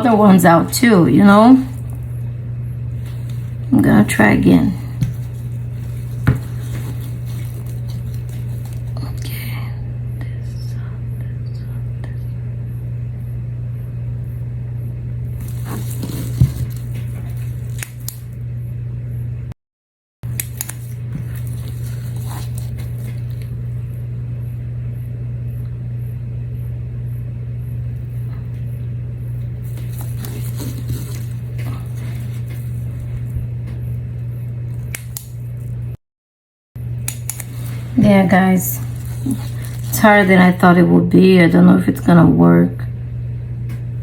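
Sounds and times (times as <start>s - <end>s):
hands handling tools scrapes: 5.0s - 9.0s, 15.4s - 18.2s, 20.4s - 23.5s, 29.6s - 33.3s.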